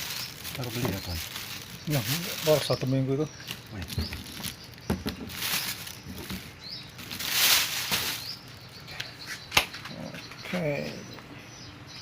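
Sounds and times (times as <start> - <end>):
rustling and handling noises: 0.0 - 8.6.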